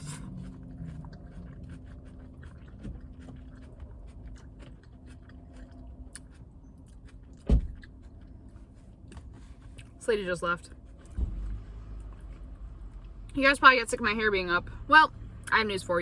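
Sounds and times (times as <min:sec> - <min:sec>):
person chewing salad: 0:00.0 - 0:10.0, 0:10.7 - 0:13.3.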